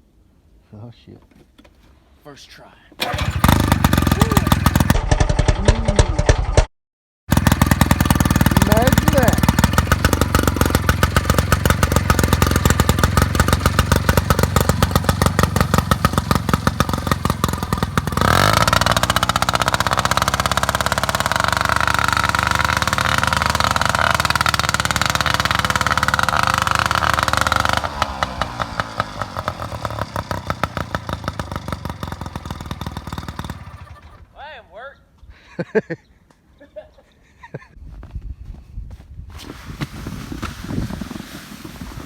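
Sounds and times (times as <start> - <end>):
small engine running: 3.0 - 6.7, 7.3 - 34.3.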